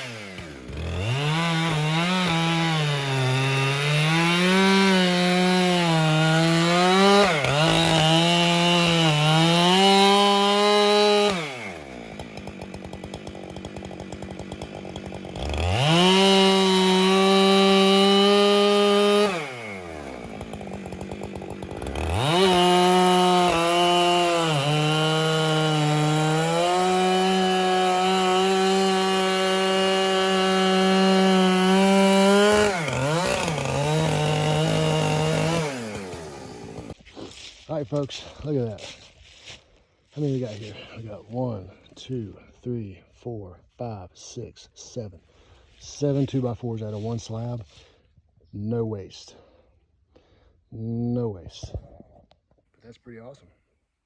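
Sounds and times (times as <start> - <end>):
chainsaw cutting through log: 0.0 - 39.6.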